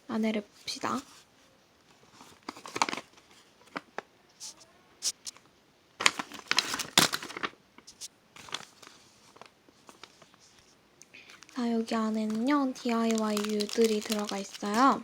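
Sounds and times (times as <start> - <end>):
packaging crinkling and rustling: 1.9 - 4.6, 6.0 - 15.0.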